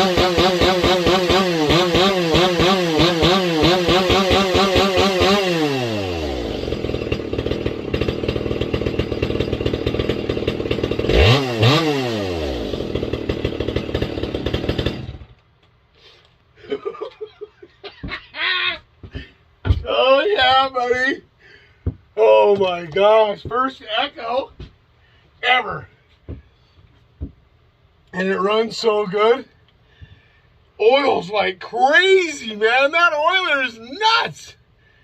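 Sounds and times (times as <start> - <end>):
chainsaw revving and idling: 0.0 - 15.4.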